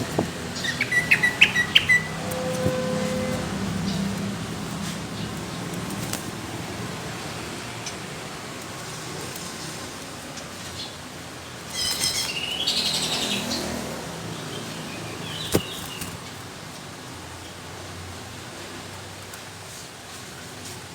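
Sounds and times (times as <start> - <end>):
bird singing harsh notes: 0.0 - 4.1
bird call: 0.1 - 4.0.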